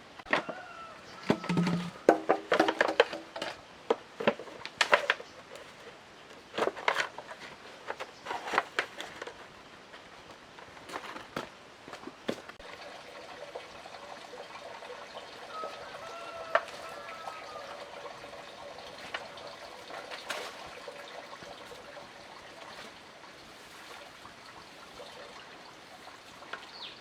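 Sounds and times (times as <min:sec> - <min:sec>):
sharp knocks and clatters: 0:01.2 - 0:05.3
trickling water: 0:12.3 - 0:27.0.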